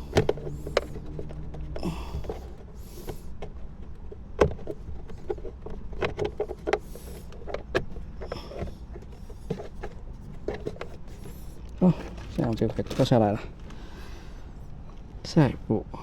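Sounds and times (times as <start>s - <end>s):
hard plastic clicks and knocks: 0.0s - 11.1s
plastic rustling: 8.8s - 14.0s.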